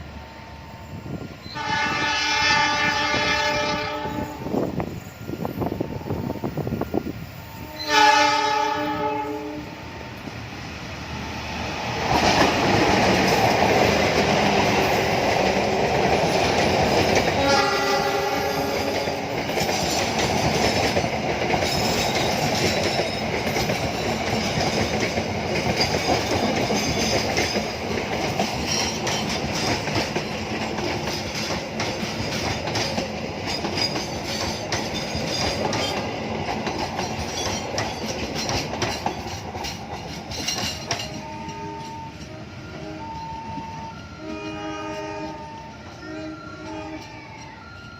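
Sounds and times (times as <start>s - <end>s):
train rumble passing: 0.0s - 47.9s
train horn: 1.5s - 4.8s, 7.5s - 10.2s, 17.2s - 19.5s, 41.0s - 47.6s
wheels clattering over rail joints: 19.4s - 42.4s.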